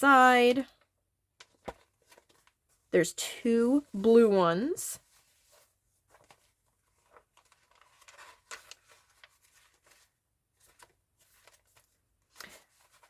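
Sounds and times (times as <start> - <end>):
paper rustling and tapping: 1.4 - 2.7, 6.0 - 13.0.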